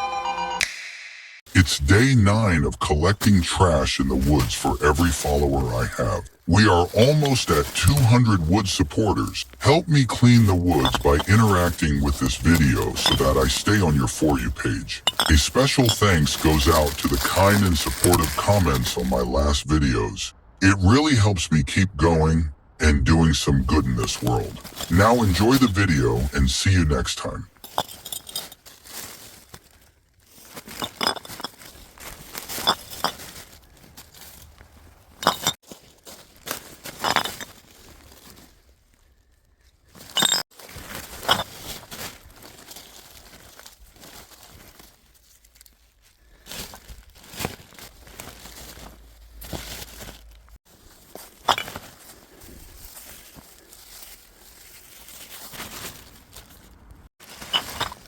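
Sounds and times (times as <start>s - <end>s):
plastic crinkling: 10.2s - 19.1s, 27.6s - 58.0s
bottles and cans clinking: 10.7s - 13.7s, 14.3s - 18.4s, 35.2s - 35.6s.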